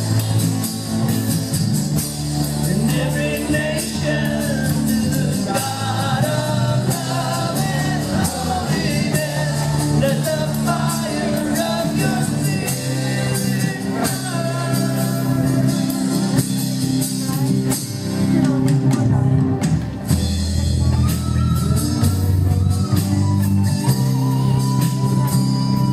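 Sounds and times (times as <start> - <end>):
drum kit beat: 0.0 - 25.9
worship band playing: 0.0 - 25.9
person singing: 2.7 - 16.4.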